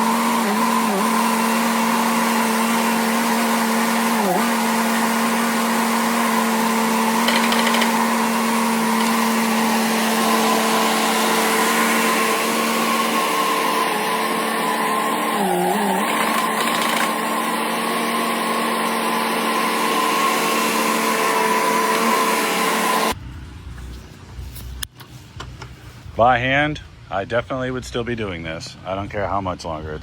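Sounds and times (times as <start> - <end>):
skid steer engine running: 0.0 - 23.5.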